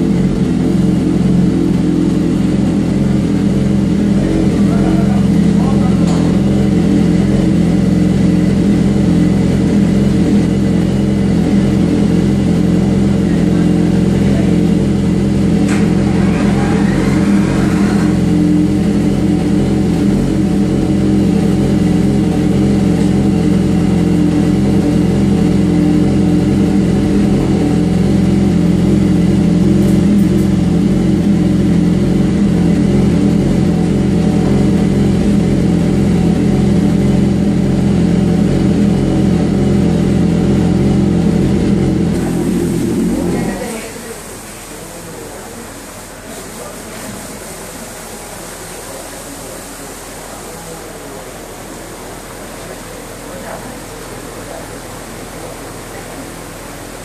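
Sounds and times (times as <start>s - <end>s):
motorcycle engine running steadily: 0.0s - 43.9s.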